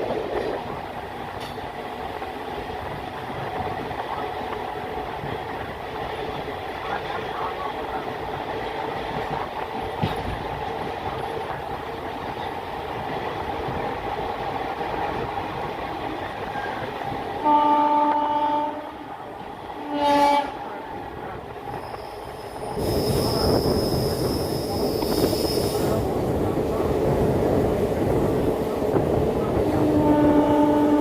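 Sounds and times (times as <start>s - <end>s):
train rumbling: 0.0s - 31.0s
locomotive horn blasts: 17.4s - 19.1s, 19.8s - 20.6s, 29.8s - 31.0s.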